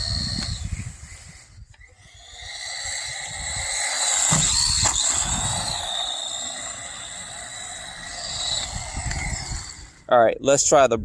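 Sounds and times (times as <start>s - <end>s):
electric motor whining: 0.0s - 10.1s
tyres rumbling on ground: 2.0s - 10.2s.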